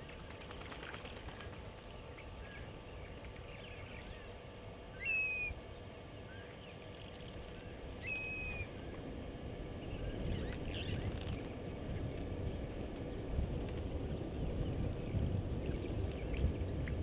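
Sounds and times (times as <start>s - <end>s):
faint bird chirps: 1.3s - 8.8s
bird whistled notes: 4.9s - 5.6s, 8.0s - 8.7s.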